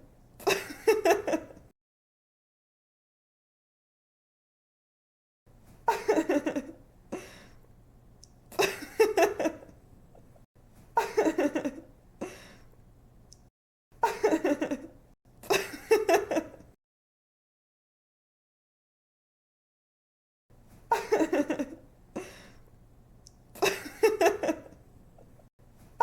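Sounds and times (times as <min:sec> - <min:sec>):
young woman giggling: 0:05.9 - 0:06.8, 0:08.6 - 0:09.7, 0:11.0 - 0:11.9, 0:14.0 - 0:16.7, 0:20.9 - 0:22.4, 0:23.6 - 0:24.8.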